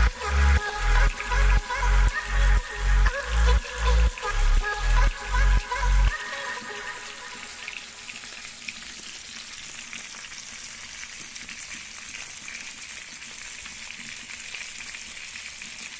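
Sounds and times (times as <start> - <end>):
food sizzling in a pan: 5.7 - 15.9.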